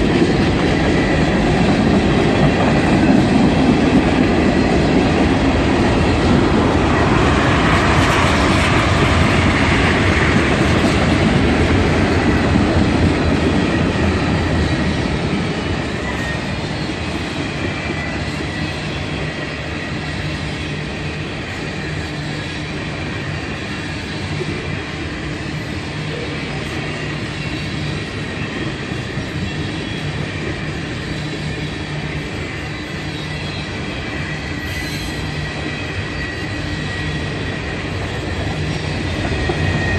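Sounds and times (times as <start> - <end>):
train wheels rumbling on rail: 0.0 - 39.9
faint wheel squeal: 31.0 - 37.3.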